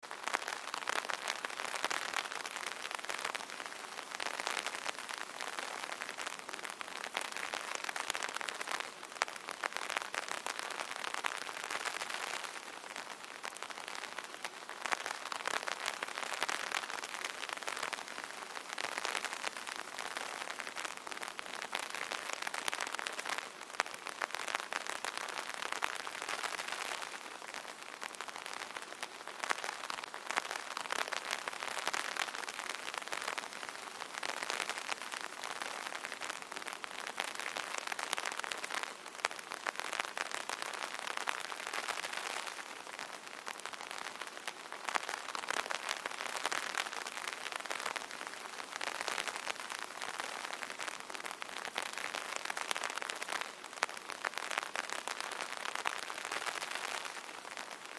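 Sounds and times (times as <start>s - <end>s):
rain pattering on umbrella: 0.0s - 57.9s.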